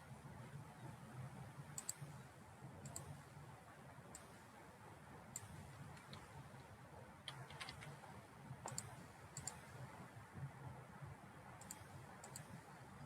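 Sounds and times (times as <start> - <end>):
low steady hum: 0.0 - 13.0
computer mouse clicks: 1.7 - 2.2, 2.8 - 3.2, 4.1 - 4.4, 5.3 - 9.9, 11.6 - 12.7.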